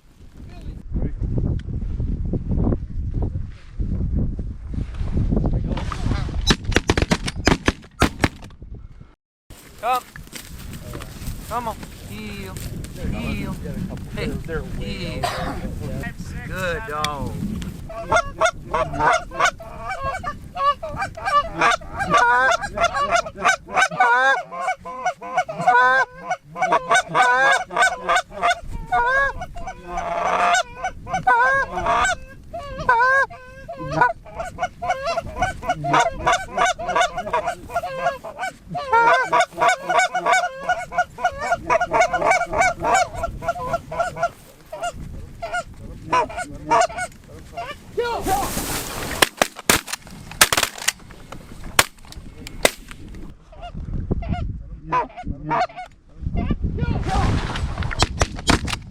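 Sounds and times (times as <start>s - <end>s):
geese honking and clucking: 16.6s - 51.0s, 51.7s - 56.5s.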